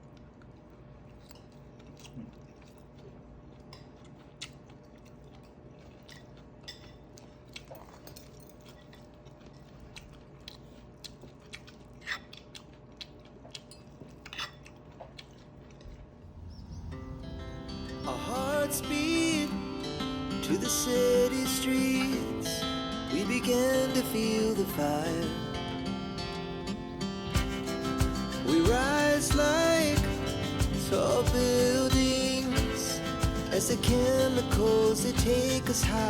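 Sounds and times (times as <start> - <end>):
person chewing: 0.0 - 16.5
cutlery and dishes clinking: 6.1 - 7.1
soft guitar song: 17.0 - 36.0.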